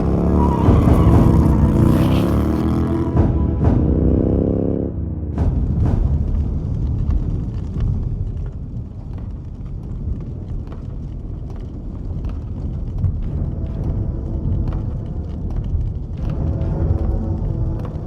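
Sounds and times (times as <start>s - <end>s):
pitched vehicle engine: 0.0s - 5.7s
sharp bangs: 0.0s - 8.8s
low rumble with crackles: 0.0s - 18.0s.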